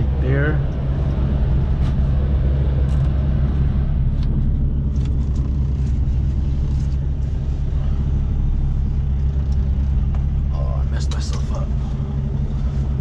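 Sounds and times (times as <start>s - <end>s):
truck diesel engine drone: 0.0s - 13.0s.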